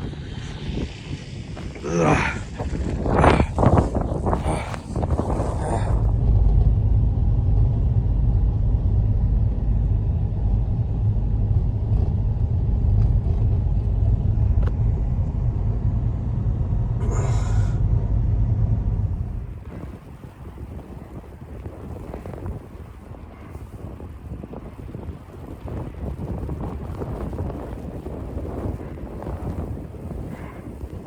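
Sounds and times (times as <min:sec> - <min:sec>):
hissing wind gust: 0:00.0 - 0:06.4, 0:17.0 - 0:31.0
blizzard wind buffeting microphone: 0:00.0 - 0:31.0.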